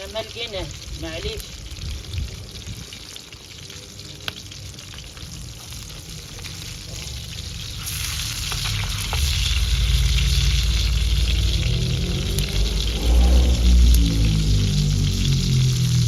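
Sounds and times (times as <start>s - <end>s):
fire crackles: 0.0s - 16.0s
food sizzling over wood fire: 0.0s - 16.0s
loud low rumble: 9.4s - 16.0s.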